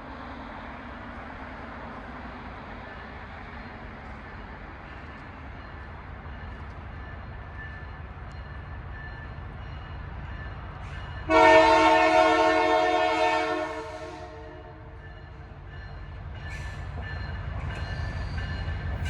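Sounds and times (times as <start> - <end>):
distant train rumble: 0.0 - 19.0.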